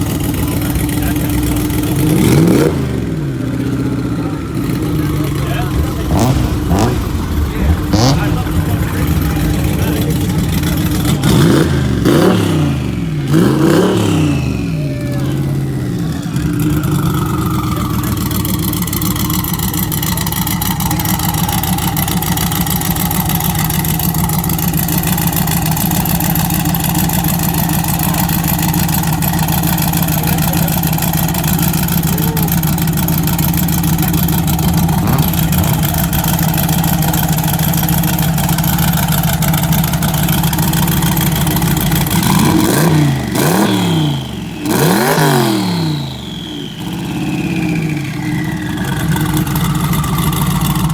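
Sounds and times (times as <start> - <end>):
car engine revving: 0.0 - 50.9.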